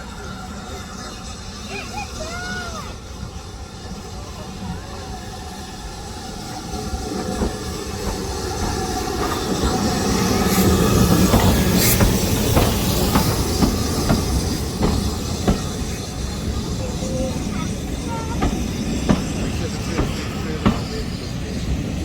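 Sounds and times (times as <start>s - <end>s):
steam train pulling in: 0.0s - 22.0s
wheels clicking over rail joints: 7.0s - 21.4s.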